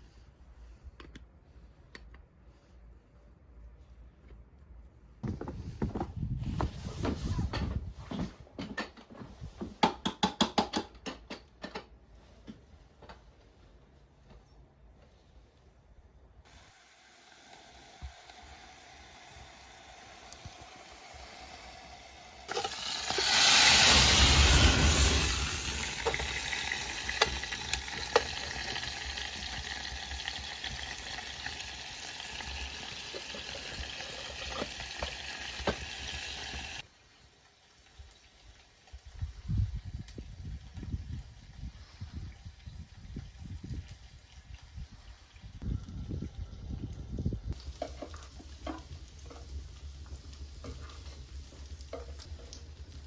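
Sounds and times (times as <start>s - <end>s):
food sizzling in a hot pan: 16.5s - 36.8s.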